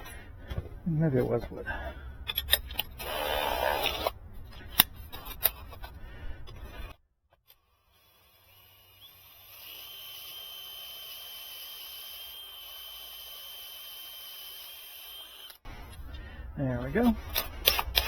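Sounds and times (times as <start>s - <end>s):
power drill whining: 2.7s - 4.2s, 7.4s - 16.3s.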